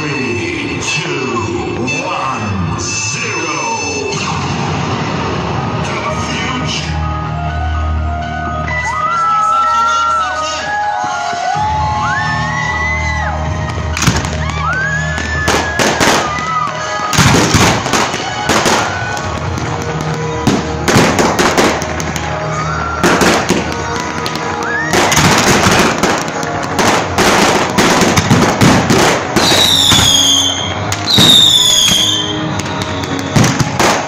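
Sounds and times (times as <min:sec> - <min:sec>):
music: 0:00.0 - 0:34.0
fireworks bangs and crackles: 0:10.5 - 0:34.0
falling firework whistles: 0:14.2 - 0:19.3, 0:29.4 - 0:34.0.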